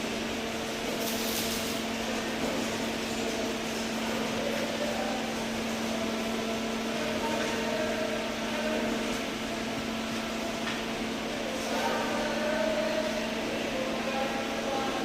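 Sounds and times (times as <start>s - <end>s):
low machine hum with hiss: 0.0s - 15.0s.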